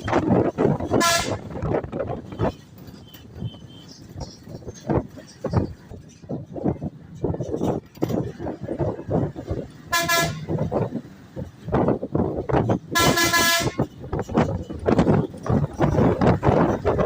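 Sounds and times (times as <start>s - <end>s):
vehicle horn toots: 0.9s - 1.6s, 9.9s - 10.6s, 12.9s - 13.9s.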